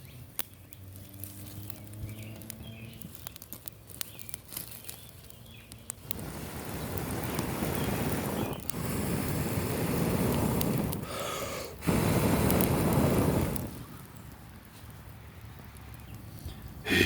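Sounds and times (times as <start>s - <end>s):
wind buffeting microphone: 6.0s - 11.2s, 11.8s - 14.2s
breaths blown into fire: 6.0s - 14.1s.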